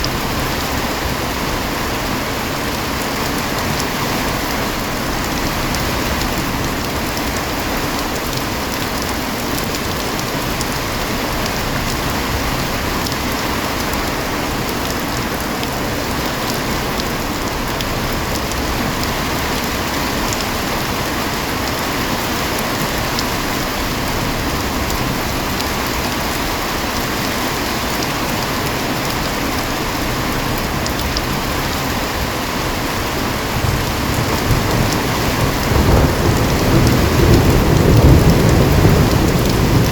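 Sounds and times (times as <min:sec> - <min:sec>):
heavy rain: 0:00.0 - 0:39.9
low rumble of thunder: 0:33.0 - 0:39.9.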